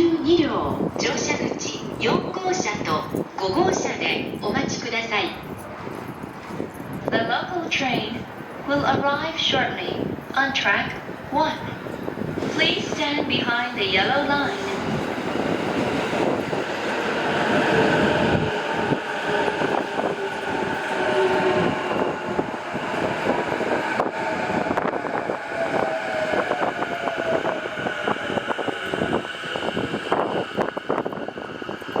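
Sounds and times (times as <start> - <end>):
electric train motor whine: 13.8 - 32.0.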